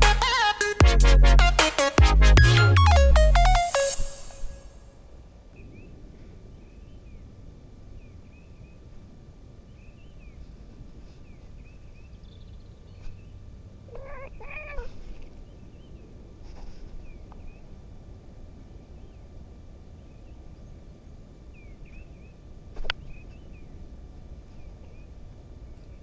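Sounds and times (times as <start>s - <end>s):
low rumbling noise: 0.9s - 9.8s
cat meowing: 13.9s - 15.2s.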